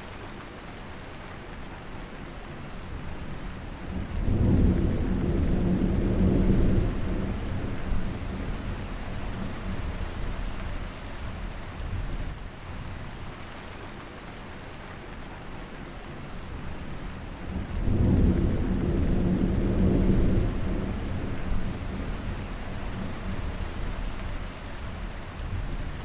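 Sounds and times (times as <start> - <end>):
steady rain falling: 0.0 - 26.0
thunder rumbling: 3.9 - 12.0, 17.4 - 26.0.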